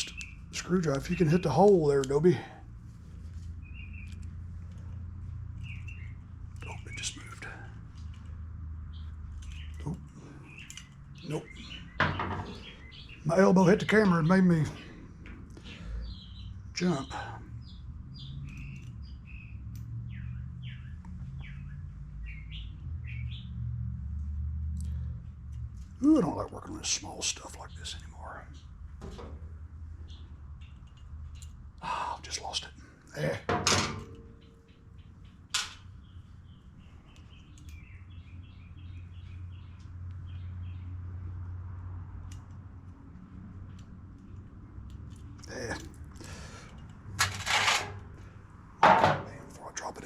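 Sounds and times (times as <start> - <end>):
songbird chirping: 0.0 - 47.1, 48.1 - 50.0.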